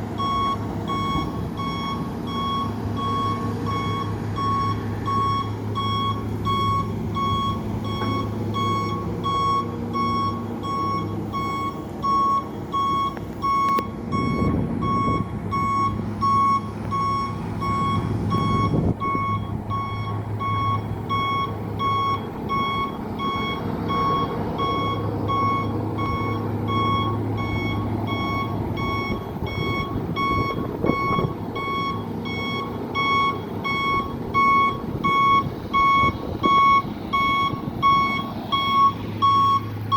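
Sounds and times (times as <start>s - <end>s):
truck engine running: 0.0s - 39.9s
truck reversing alarm beeping: 0.0s - 39.9s.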